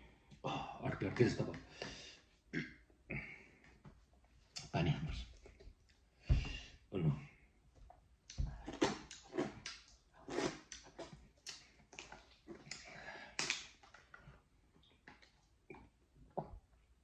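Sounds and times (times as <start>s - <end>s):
wet chewing and lip smacking: 8.3s - 16.0s.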